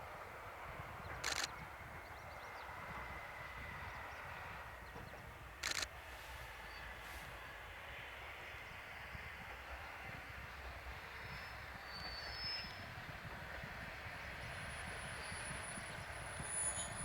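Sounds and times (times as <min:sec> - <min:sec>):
camera shutter click: 0:01.2 - 0:01.5, 0:05.6 - 0:05.9.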